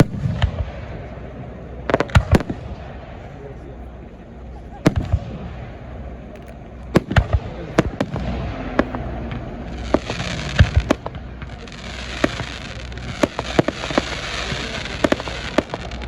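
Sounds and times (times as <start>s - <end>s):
fireworks bangs: 0.0s - 3.6s, 4.3s - 16.0s
fireworks hiss: 6.3s - 16.0s.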